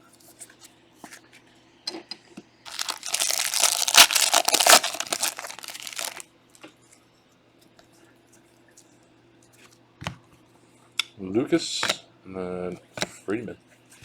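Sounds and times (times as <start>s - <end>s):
foil wrapper crinkling: 2.7s - 6.2s.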